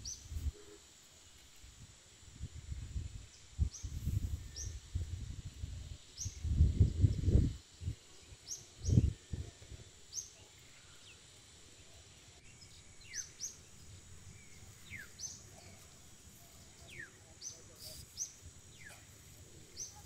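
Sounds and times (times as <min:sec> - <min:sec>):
birds chirping: 0:10.1 - 0:20.0.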